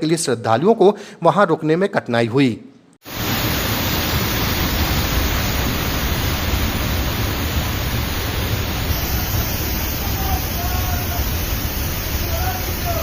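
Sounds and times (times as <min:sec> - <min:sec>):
waterfall rushing: 0:03.1 - 0:13.0.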